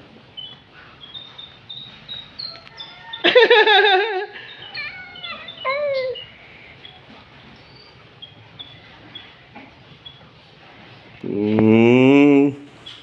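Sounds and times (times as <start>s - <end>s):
loud high wavering vocal cry: 4.0s - 6.3s.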